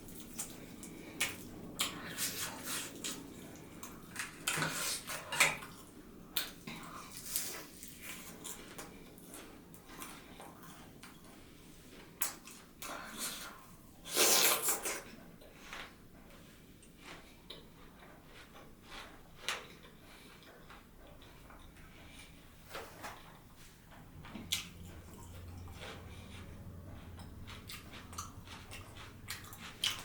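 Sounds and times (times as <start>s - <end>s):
chewing clicks: 27.1s - 30.0s.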